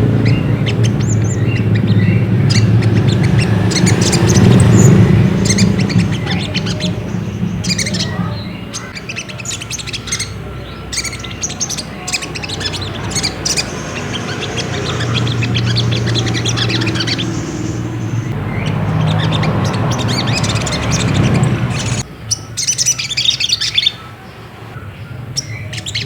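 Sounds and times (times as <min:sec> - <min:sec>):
bird chirps and trills: 0:00.0 - 0:24.1, 0:24.9 - 0:26.0
low hum: 0:12.4 - 0:22.0.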